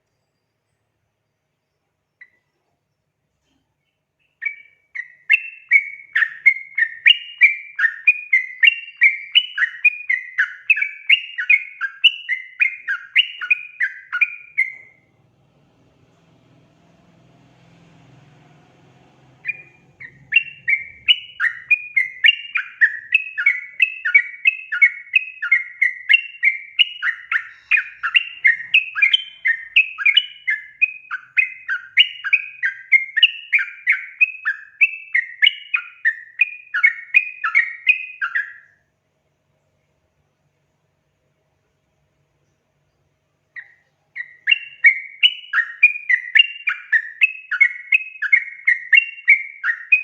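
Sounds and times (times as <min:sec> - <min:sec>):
bird chattering call: 0:19.4 - 0:24.8.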